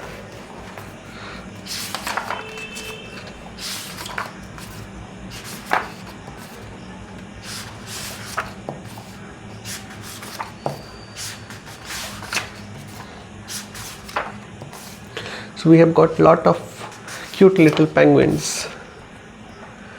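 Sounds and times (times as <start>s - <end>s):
book pages turning: 0.0s - 15.4s, 16.1s - 18.8s
sharp page flick: 1.6s - 4.8s.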